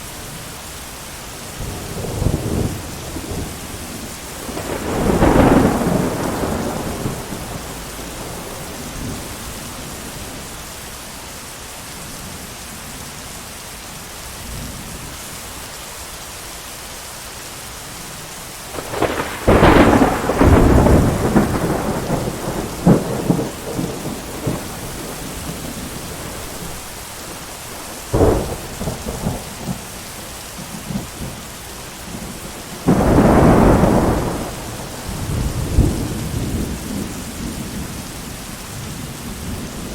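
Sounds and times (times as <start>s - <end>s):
heavy rain: 0.0s - 39.9s
thunder: 4.4s - 9.4s, 18.7s - 26.8s, 28.0s - 30.0s, 32.1s - 39.9s.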